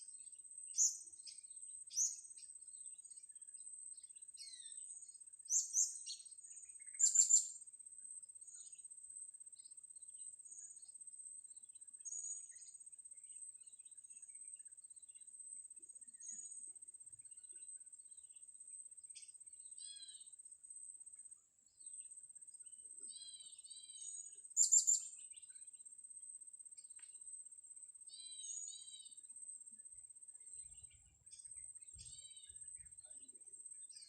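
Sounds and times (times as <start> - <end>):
small birds chirping: 0.0 - 7.6, 8.3 - 8.9, 9.5 - 20.4, 21.0 - 25.9, 28.0 - 34.0.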